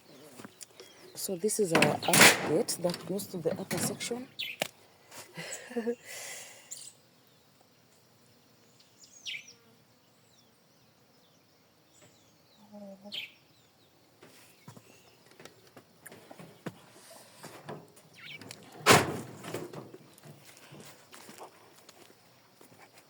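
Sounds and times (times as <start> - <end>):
birds calling: 0.0 - 4.7, 11.2 - 18.9.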